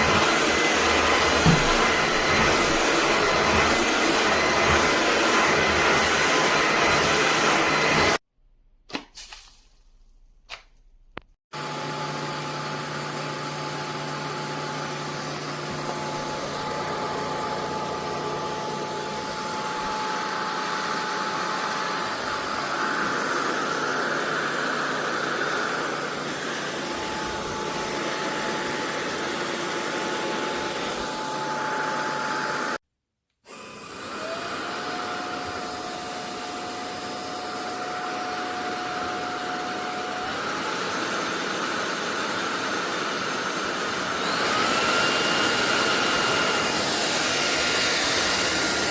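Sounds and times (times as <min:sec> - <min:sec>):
stick vacuum whining: 0:00.0 - 0:08.2, 0:33.5 - 0:48.9.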